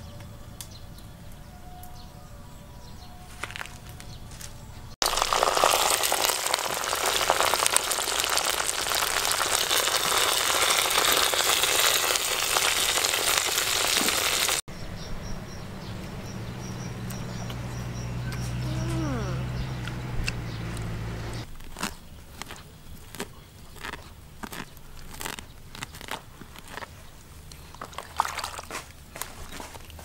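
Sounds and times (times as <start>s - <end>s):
meat deep-frying in hot oil: 5.0s - 14.6s.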